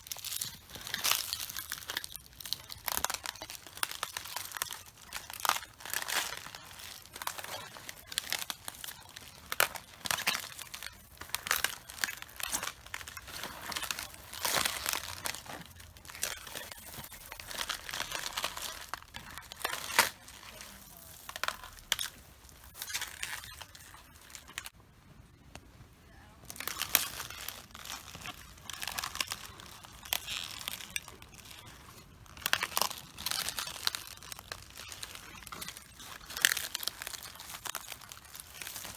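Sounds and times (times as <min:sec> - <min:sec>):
cabbage leaves crunching underfoot: 0:00.0 - 0:24.7, 0:26.4 - 0:38.9.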